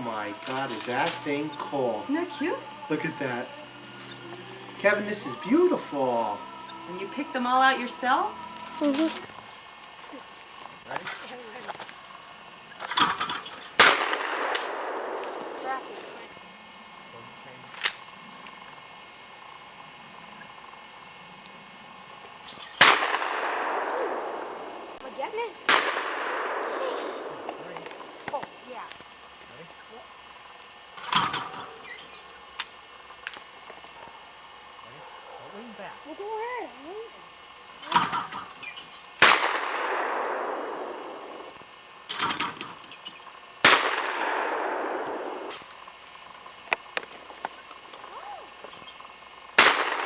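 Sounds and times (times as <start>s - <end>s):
shotgun shots echoing: 12.9s - 16.2s, 22.8s - 25.0s, 25.6s - 28.6s, 39.2s - 42.5s, 43.6s - 45.7s, 49.6s - 50.0s.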